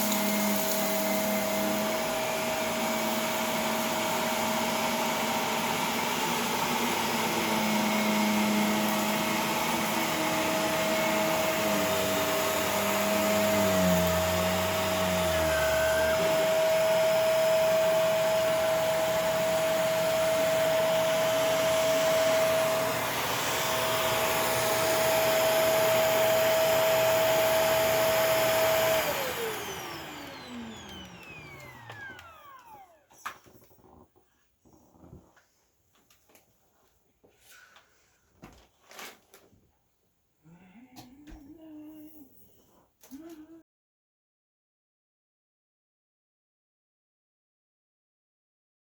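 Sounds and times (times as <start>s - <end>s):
vacuum cleaner motor whine: 0.0s - 34.0s.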